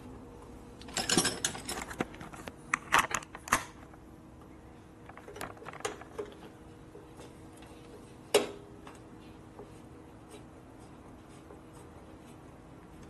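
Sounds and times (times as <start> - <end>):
metal tools clinking and rattling: 0.9 - 2.0.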